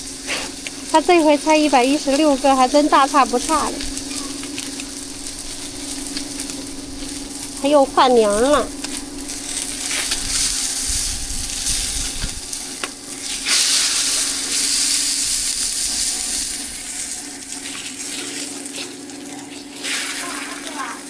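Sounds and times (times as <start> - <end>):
steady low hum: 0.0 - 13.4
oil sizzling on a griddle: 0.0 - 21.0.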